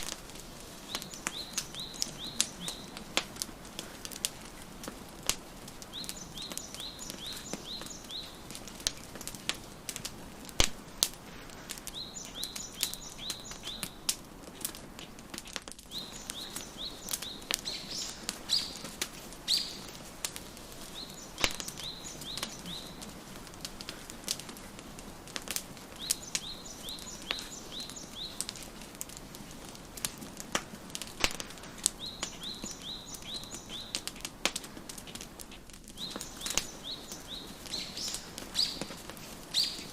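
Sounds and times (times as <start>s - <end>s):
songbird chirping: 0.0s - 9.2s, 11.8s - 14.2s, 15.9s - 24.0s, 25.8s - 28.9s, 31.3s - 34.3s, 35.9s - 39.9s
wood fire crackling and popping: 0.0s - 39.9s.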